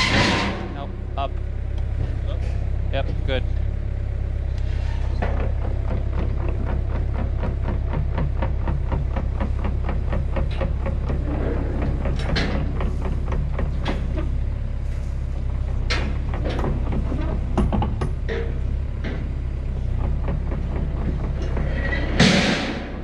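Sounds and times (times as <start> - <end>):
heavy machine engine humming: 0.0 - 23.0
loud knocks: 5.2 - 14.3, 16.0 - 23.0.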